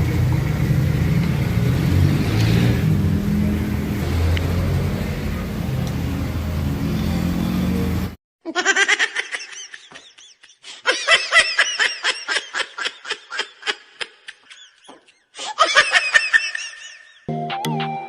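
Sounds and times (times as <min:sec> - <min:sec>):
scooter engine running: 0:00.0 - 0:08.2
laughter: 0:08.5 - 0:17.3.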